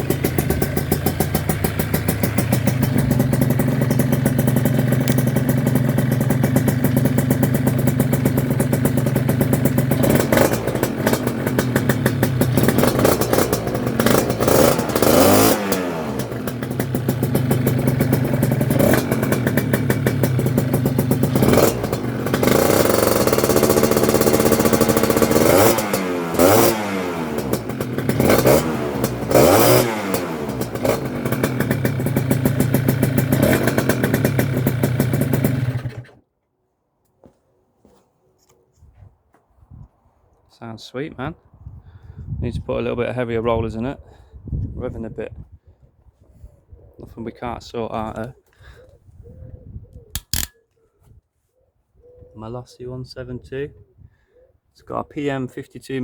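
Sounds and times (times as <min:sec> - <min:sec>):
two-stroke scooter engine idling: 0:00.0 - 0:36.2.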